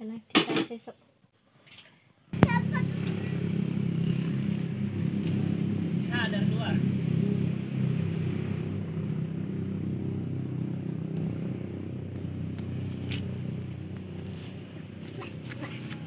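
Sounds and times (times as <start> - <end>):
engine humming: 2.3 - 16.0.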